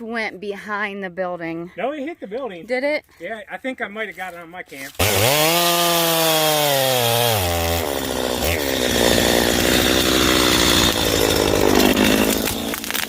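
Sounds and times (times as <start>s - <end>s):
chainsaw cutting wood: 4.8s - 13.0s.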